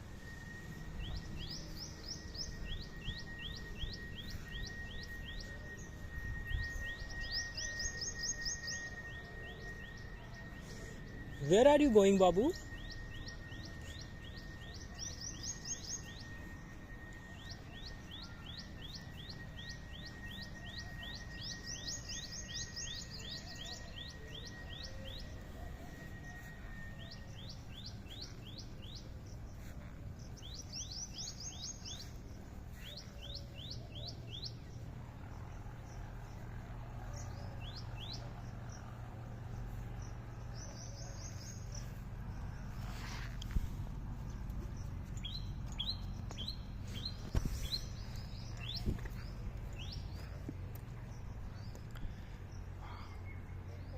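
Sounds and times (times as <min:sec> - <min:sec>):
thin high tone: 0:00.0 - 0:35.2
birds chirping: 0:00.0 - 0:53.9.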